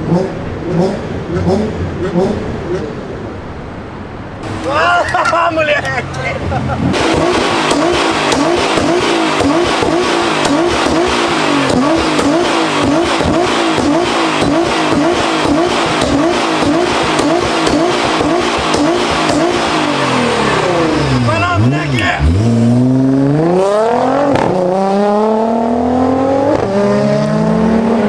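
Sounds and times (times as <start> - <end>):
car engine revving: 0.0 - 3.3, 4.2 - 28.0.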